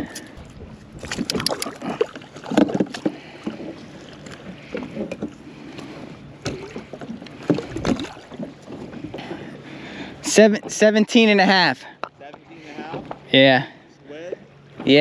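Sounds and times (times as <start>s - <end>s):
knocks and clicks of gear: 1.1s - 1.8s.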